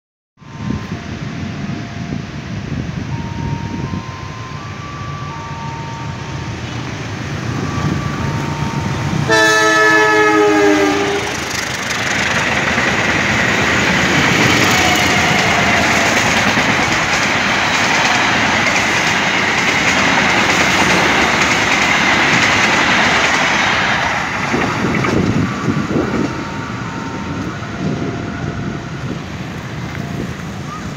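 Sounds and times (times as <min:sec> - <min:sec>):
high whine: 0:00.4 - 0:30.9
train passing close by: 0:00.4 - 0:30.9
train horn: 0:09.1 - 0:11.6.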